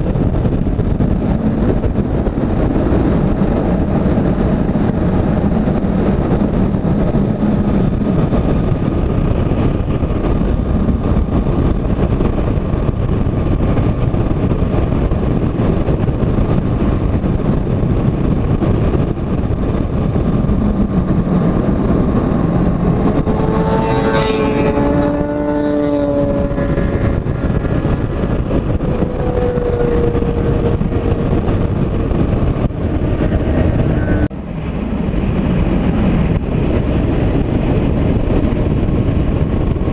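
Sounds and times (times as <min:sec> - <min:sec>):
motorcycle engine drone: 0:00.0 - 0:39.9
wind rush: 0:00.0 - 0:39.9
passing vehicle tone: 0:18.0 - 0:39.3.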